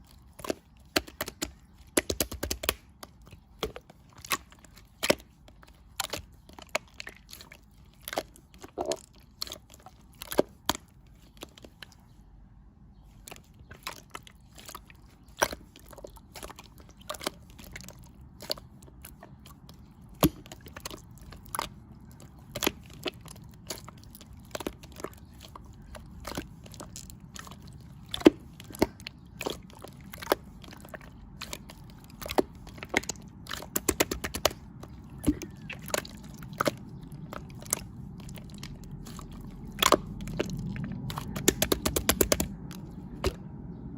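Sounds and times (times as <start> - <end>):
crisp clicks and crunches: 13.0 - 43.6.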